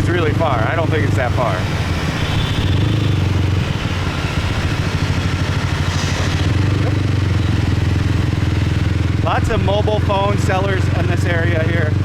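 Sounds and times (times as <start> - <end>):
motorcycle engine: 0.0 - 12.0
street noise: 0.0 - 12.0
wind: 0.0 - 12.0.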